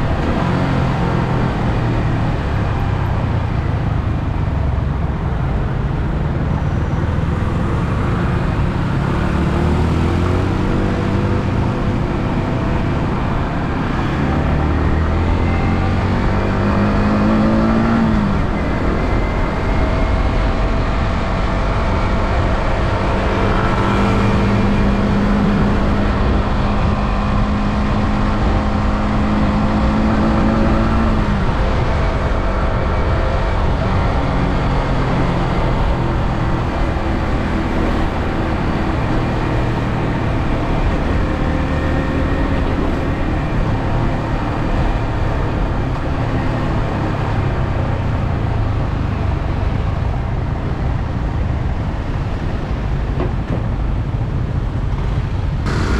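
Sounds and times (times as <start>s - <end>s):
heavy wind rush: 0.0s - 55.9s
motorcycle engine running: 53.4s - 55.9s.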